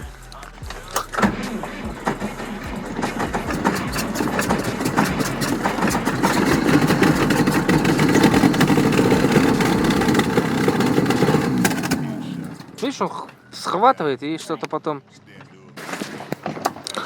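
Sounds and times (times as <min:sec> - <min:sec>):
car engine cranking and firing unevenly: 0:00.5 - 0:13.1.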